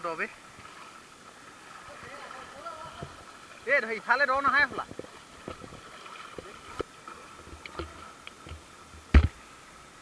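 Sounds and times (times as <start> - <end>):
footsteps wading through water: 0.5 - 8.4
sharp thump: 9.1 - 9.4.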